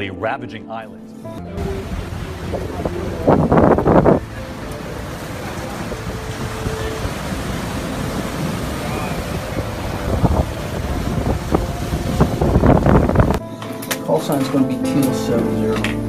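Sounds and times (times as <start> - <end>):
heavy surf crashing on shore: 1.5 - 13.4
wind buffeting microphone: 1.5 - 13.4
hurricane wind: 1.5 - 13.5.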